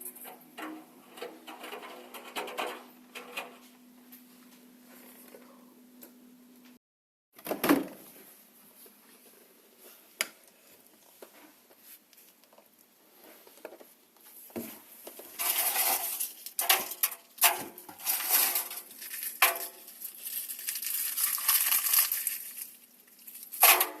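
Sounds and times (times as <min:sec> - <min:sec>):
faint steady hum: 0:00.0 - 0:06.8
small hard objects crunching and clinking: 0:18.0 - 0:23.7.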